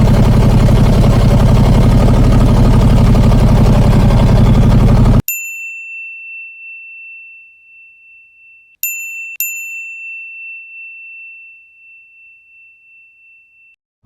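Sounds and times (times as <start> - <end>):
small bell ringing: 5.2 - 13.8.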